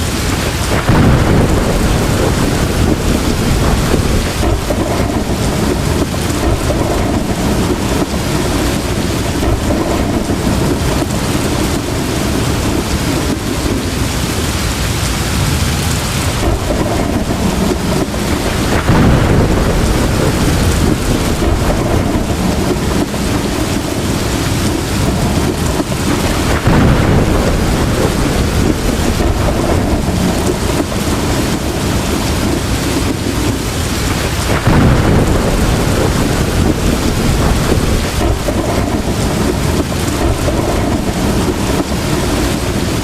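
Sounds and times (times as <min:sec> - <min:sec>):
heavy rain hissing: 0:00.0 - 0:43.0
low rumble of thunder: 0:00.0 - 0:43.0.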